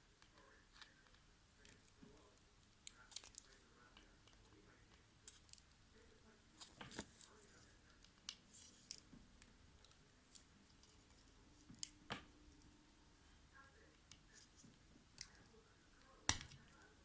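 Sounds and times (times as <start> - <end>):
plastic parts clicking and snapping: 2.8 - 5.7.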